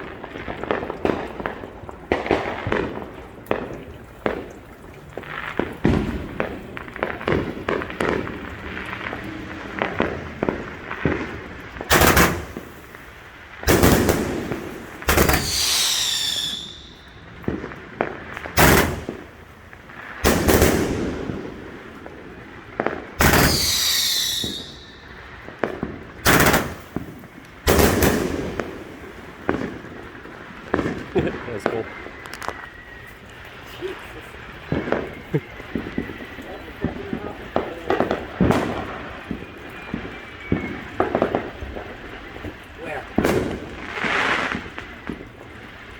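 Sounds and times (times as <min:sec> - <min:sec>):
fireworks booms with rumble: 0:00.0 - 0:45.9
fireworks crackling pops: 0:00.0 - 0:45.9
falling firework whistles: 0:11.9 - 0:13.1, 0:13.7 - 0:17.7, 0:18.5 - 0:19.4, 0:23.1 - 0:25.5, 0:30.7 - 0:42.4, 0:43.1 - 0:45.8.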